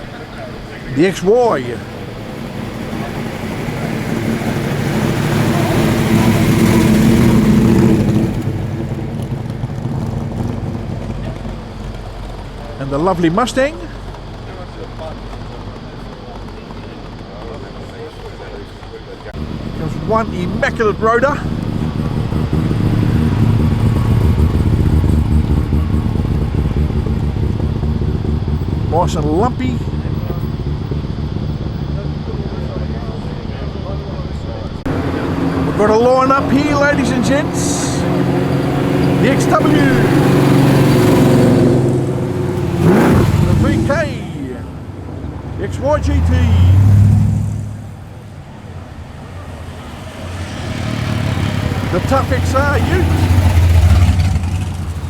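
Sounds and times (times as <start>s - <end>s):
car engine driving past: 0.0s - 55.0s.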